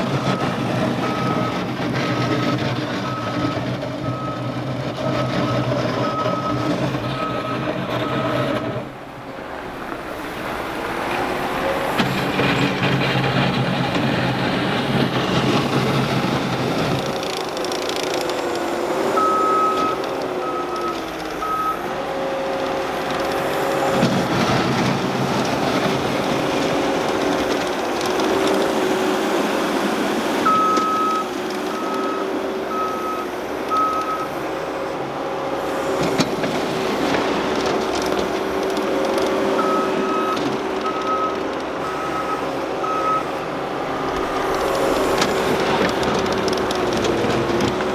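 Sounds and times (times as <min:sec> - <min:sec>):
diesel engine running: 0:00.0 - 0:47.9
backup alarm beeping: 0:39.6 - 0:43.4.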